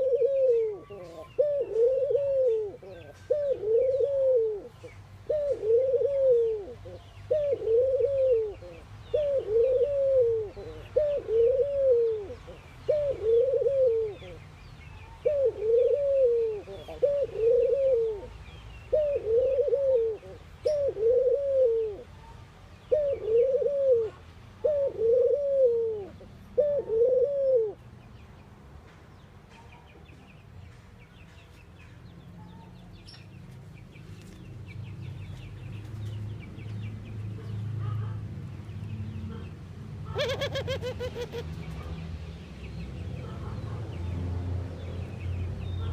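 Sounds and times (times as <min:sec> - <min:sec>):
dove cooing: 0:00.0 - 0:14.4, 0:15.1 - 0:18.3, 0:18.9 - 0:22.1, 0:22.9 - 0:27.8, 0:39.3 - 0:41.9.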